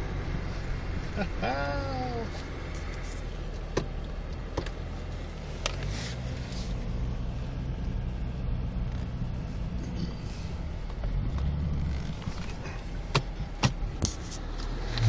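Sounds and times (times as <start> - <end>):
car engine driving through snow: 4.8 - 15.0.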